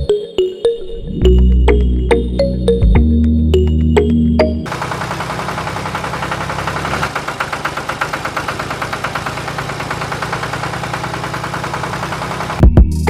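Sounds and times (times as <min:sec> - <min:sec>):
background music: 0:00.0 - 0:04.7, 0:12.6 - 0:13.0
small engine idling: 0:04.6 - 0:12.8.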